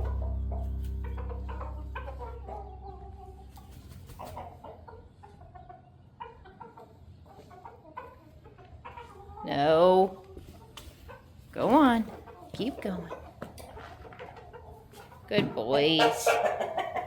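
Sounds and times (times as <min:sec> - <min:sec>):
low steady hum: 0:00.0 - 0:05.5
chickens clucking: 0:00.0 - 0:17.0.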